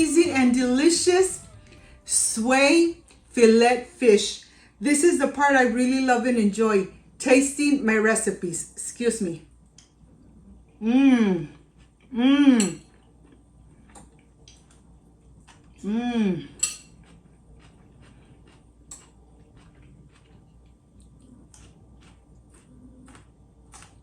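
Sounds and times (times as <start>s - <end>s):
woman humming mmm with enjoyment: 0.0s - 2.4s, 10.8s - 12.8s, 15.8s - 16.6s
cutlery clinking on a plate: 16.6s - 17.0s.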